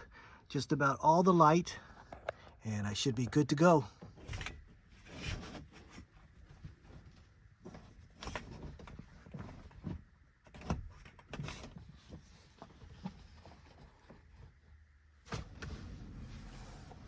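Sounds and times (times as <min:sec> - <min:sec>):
rustling: 0:04.1 - 0:17.0.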